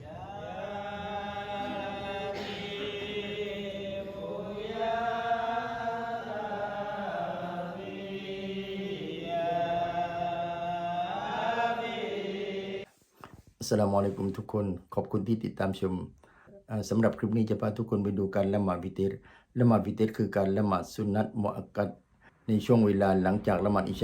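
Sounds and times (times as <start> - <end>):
person chanting: 0.0 - 12.9, 22.5 - 24.0.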